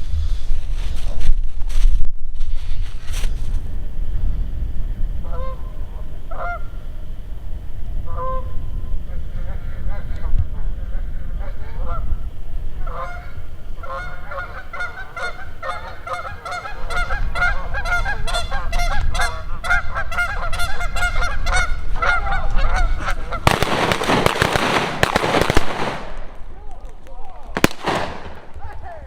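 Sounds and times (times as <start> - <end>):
geese honking: 5.2 - 6.9, 8.0 - 24.9
shotgun blast: 23.4 - 26.4, 27.6 - 28.5.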